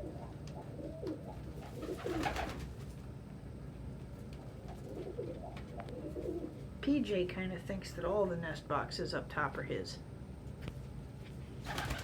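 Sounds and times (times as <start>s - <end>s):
pigeons cooing: 0.0s - 2.6s, 4.7s - 6.6s.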